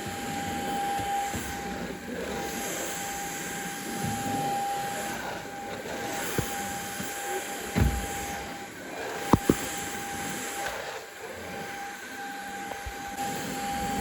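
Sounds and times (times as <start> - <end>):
appliance humming with high whine: 0.0 - 14.0.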